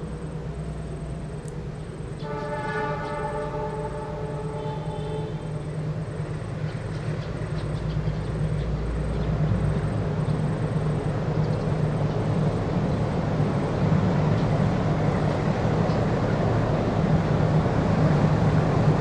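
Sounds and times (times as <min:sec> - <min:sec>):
diesel locomotive engine hum: 0:00.0 - 0:19.0
train horn blast: 0:02.1 - 0:06.0.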